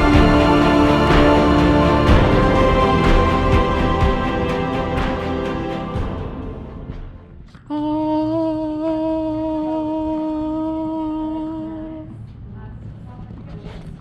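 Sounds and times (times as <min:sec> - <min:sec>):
music track: 0:00.0 - 0:07.6
person humming a steady note: 0:07.7 - 0:12.1.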